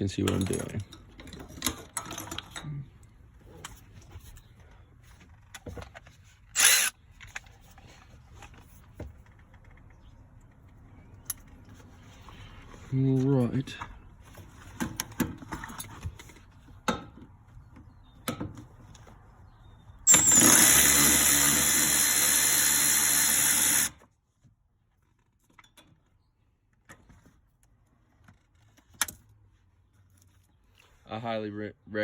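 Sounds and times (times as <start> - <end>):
cordless power tool running: 6.6 - 6.9, 20.1 - 24.0.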